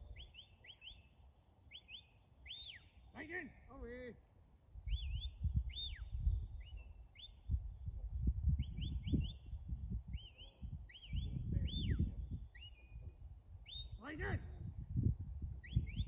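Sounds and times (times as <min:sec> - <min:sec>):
bird chirping: 0:00.0 - 0:03.2, 0:04.9 - 0:07.6, 0:08.6 - 0:14.0, 0:15.6 - 0:16.0
wind rumble on microphone: 0:04.8 - 0:16.0.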